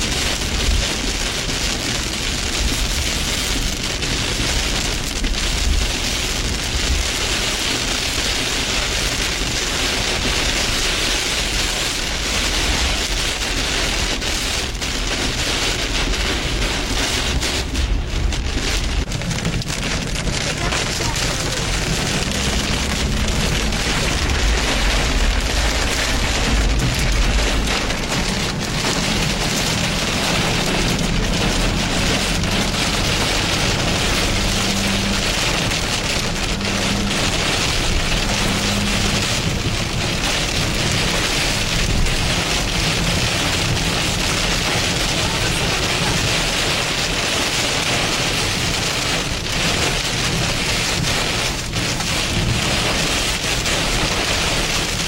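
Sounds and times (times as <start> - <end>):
heavy rain: 0.0 - 55.0
low rumble: 11.5 - 48.0.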